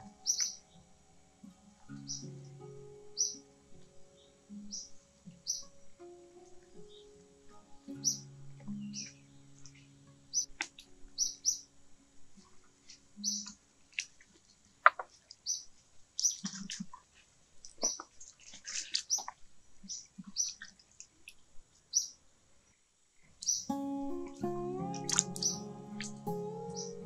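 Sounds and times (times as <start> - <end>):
small bird chirping: 0.0 - 0.9, 1.9 - 2.3, 3.2 - 3.4, 4.2 - 5.8, 8.0 - 11.7, 13.2 - 13.6, 23.4 - 23.7, 25.2 - 27.0.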